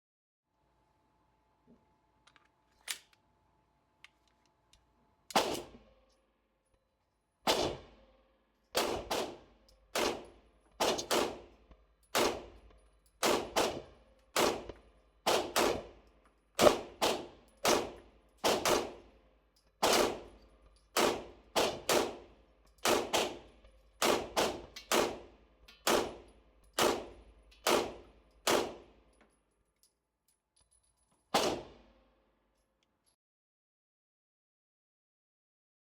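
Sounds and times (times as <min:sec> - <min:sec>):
airsoft gun firing single shots: 0:05.3 - 0:05.7, 0:07.5 - 0:07.9, 0:10.8 - 0:11.4, 0:13.2 - 0:15.9, 0:16.6 - 0:19.0, 0:19.8 - 0:20.2, 0:26.8 - 0:28.8, 0:31.4 - 0:31.8.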